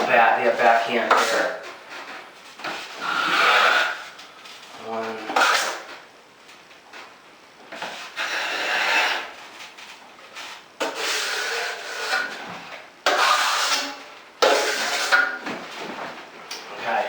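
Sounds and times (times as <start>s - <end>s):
trowel scraping joint compound: 0.4s - 1.6s, 2.6s - 4.2s, 5.3s - 5.9s, 7.7s - 9.4s, 10.4s - 15.4s.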